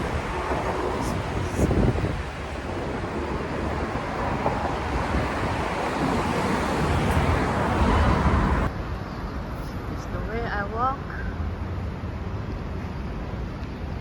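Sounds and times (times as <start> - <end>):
wind buffeting microphone: 0.0 - 8.7
street traffic: 0.0 - 14.0.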